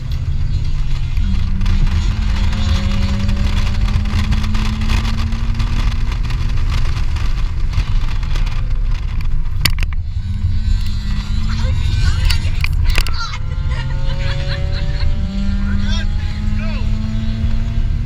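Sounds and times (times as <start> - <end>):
car engine under load: 0.0 - 18.0
tyre and wind noise: 0.0 - 18.0.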